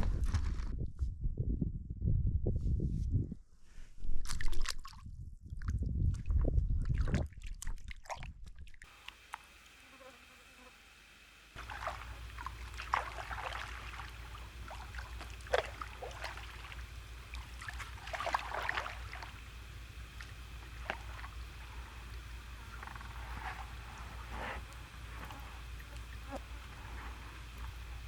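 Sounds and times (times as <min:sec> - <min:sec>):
steady low rumble: 0:00.0 - 0:04.2, 0:05.0 - 0:07.3, 0:11.6 - 0:28.0
water splashing and sloshing: 0:04.2 - 0:05.0, 0:05.6 - 0:28.0.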